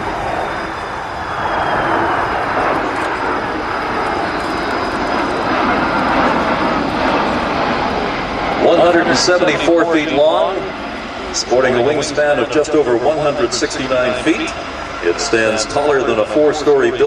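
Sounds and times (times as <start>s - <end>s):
jet aircraft flying past: 0.0s - 17.0s.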